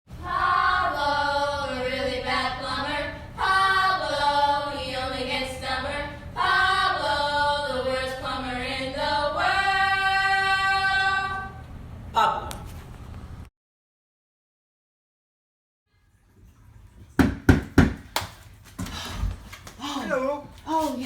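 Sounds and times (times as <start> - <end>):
choir-like singing: 0.1 - 11.6.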